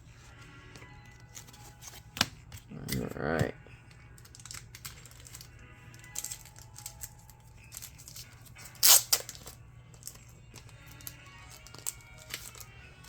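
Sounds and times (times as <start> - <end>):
quiet background music: 0.0 - 13.0
trading cards rustling and clicking: 0.1 - 13.0.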